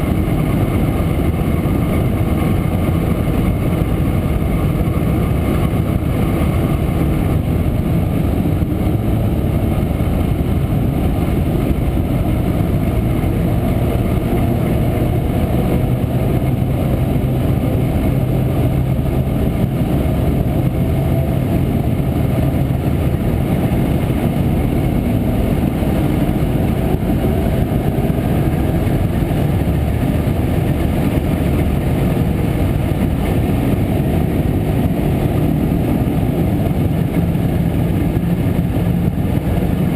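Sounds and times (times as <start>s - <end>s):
two-stroke motorcycle engine running: 0.0s - 39.9s.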